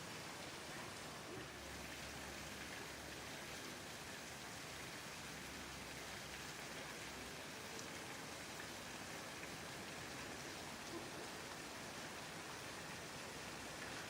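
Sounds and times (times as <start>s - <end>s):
steady hiss of water: 0.0s - 14.0s.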